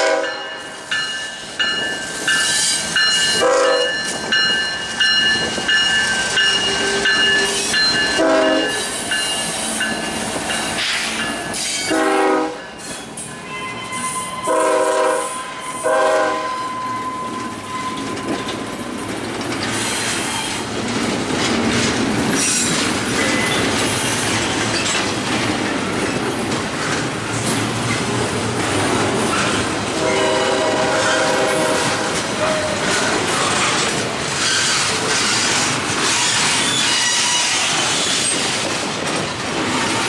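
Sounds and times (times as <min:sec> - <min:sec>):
train horn: 0:00.0 - 0:00.5, 0:03.3 - 0:04.0, 0:08.2 - 0:08.8, 0:11.9 - 0:12.7, 0:13.4 - 0:18.1, 0:30.0 - 0:32.8
freight train rolling past: 0:00.0 - 0:40.0
steel wheels clattering over rail joints: 0:00.9 - 0:13.3, 0:17.3 - 0:40.0
high wheel squeals: 0:12.8 - 0:14.6, 0:16.5 - 0:18.7, 0:36.1 - 0:38.4.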